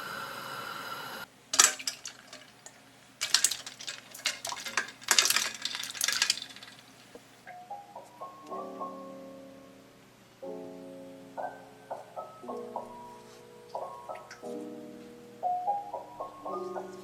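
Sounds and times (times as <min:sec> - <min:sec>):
steady hum: 0:00.0 - 0:07.4
dishes and utensils clinking: 0:01.5 - 0:07.2.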